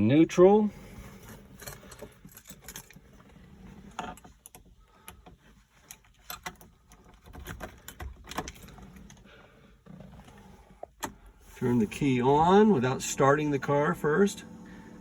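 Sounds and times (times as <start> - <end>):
car controls clicking and rattling: 1.2 - 11.3.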